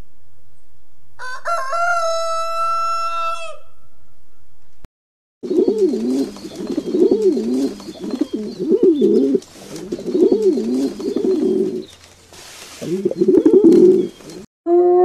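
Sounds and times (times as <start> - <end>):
bird cooing: 5.4 - 11.9, 12.8 - 15.0.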